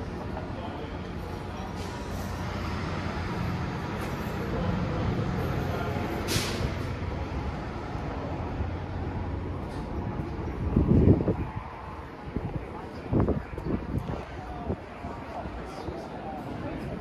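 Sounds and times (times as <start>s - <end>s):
short sharp hiss: 6.3s - 6.8s.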